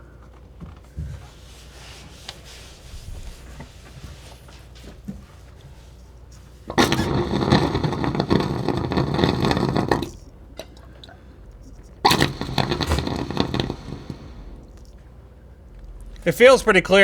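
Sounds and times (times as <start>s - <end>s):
air and water sputtering from pipe: 0.9s - 17.0s.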